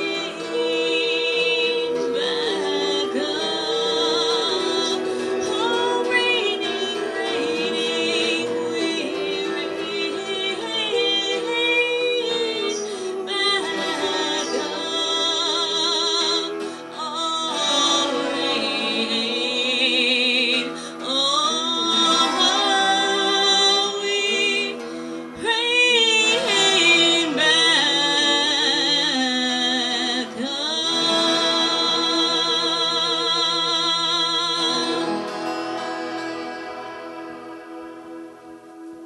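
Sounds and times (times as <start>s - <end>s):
person singing long wavering notes: 0.0s - 39.0s.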